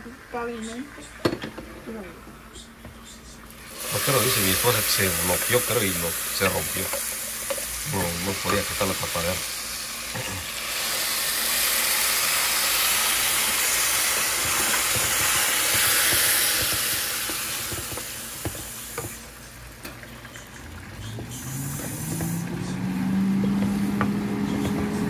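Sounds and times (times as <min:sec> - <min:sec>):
food sizzling in frying pan: 0:03.4 - 0:24.6
motor hum rising in pitch: 0:20.6 - 0:25.0.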